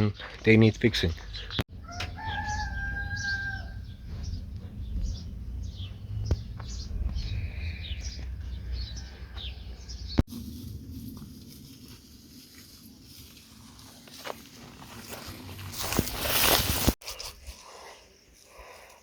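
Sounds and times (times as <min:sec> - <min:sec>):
small birds chirping: 0:00.0 - 0:10.2
rooster crowing: 0:01.7 - 0:04.2
low rumble: 0:01.7 - 0:13.2.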